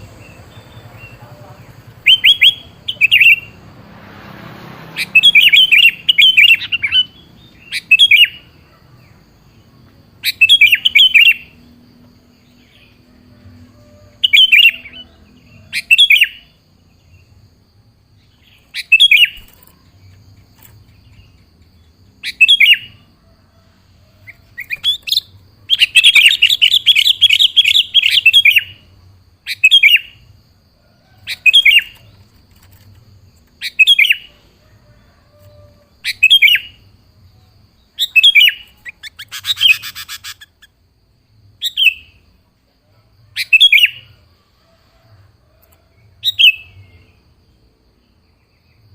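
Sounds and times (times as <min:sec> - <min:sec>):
bulbul calling: 0:00.0 - 0:03.6, 0:05.0 - 0:08.8, 0:10.2 - 0:11.6, 0:22.2 - 0:23.1, 0:24.2 - 0:30.2, 0:31.2 - 0:32.1, 0:35.4 - 0:36.8, 0:37.9 - 0:40.8
bird chattering: 0:38.0 - 0:40.8
harsh buzzy bird call: 0:38.0 - 0:40.8.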